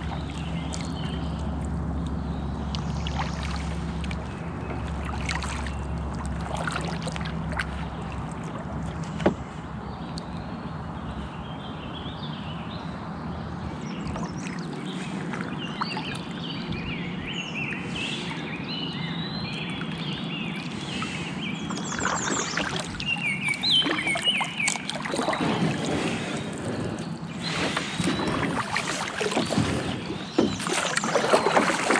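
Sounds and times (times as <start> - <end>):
paddle splashes: 0.0 - 9.7, 13.9 - 16.6, 19.8 - 31.9
birds chirping: 0.0 - 31.9
river water noise: 0.0 - 31.9.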